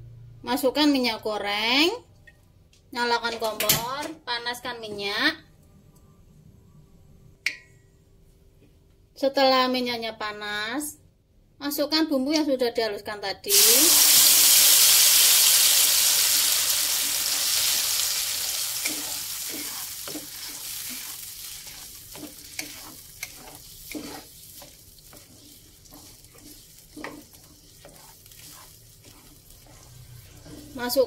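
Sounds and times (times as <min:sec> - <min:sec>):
paste sizzling in hot oil: 0:13.5 - 0:31.0
metal spatula scraping wok: 0:17.0 - 0:31.0.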